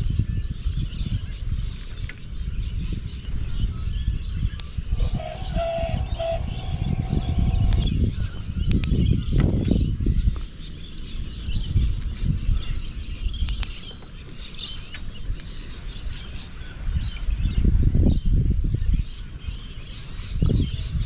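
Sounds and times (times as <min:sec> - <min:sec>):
uneven low rumble: 0:00.0 - 0:10.4
birds chirping: 0:00.0 - 0:21.0.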